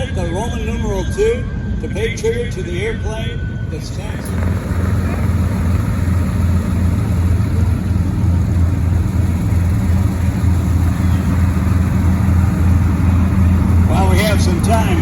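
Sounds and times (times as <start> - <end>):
aircraft engines idling: 0.0 - 15.0.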